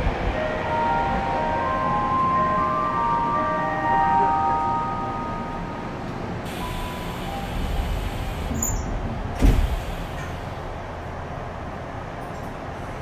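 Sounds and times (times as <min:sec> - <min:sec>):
train doors shutting thump: 0:06.5 - 0:10.5.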